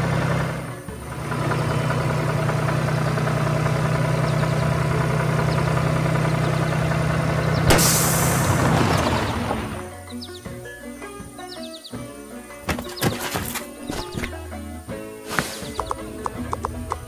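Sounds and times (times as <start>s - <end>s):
heavy vehicle engine idling: 0.0s - 10.5s
loud crash-like burst: 7.7s - 9.1s.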